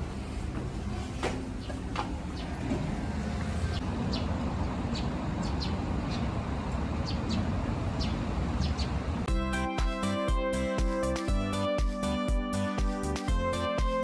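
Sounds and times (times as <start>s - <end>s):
low outdoor rumble: 0.0s - 9.3s.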